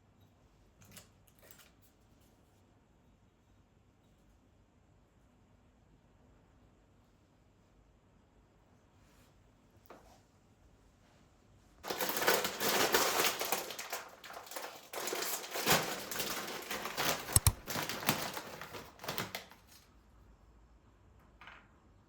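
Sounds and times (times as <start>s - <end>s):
packaging crinkling: 11.8s - 19.8s.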